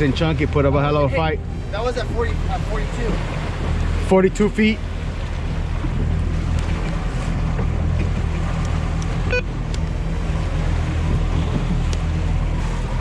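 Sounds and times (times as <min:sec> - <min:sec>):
boat engine humming: 0:00.0 - 0:13.0
water noise: 0:00.0 - 0:13.0
wind: 0:00.0 - 0:13.0.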